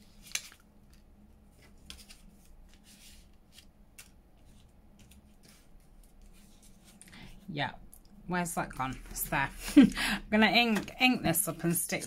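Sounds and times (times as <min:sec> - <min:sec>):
paper and card rustling: 0:00.0 - 0:07.4.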